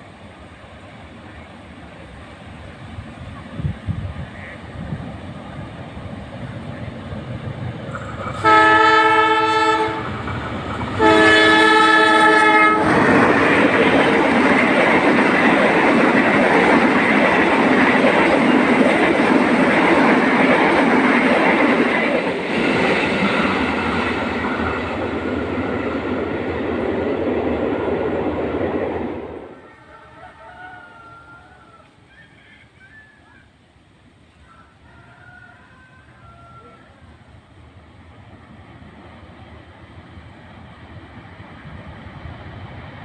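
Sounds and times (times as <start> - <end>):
train passing on rails: 0.0 - 43.0
locomotive horn blasts: 8.4 - 10.2, 11.0 - 13.0.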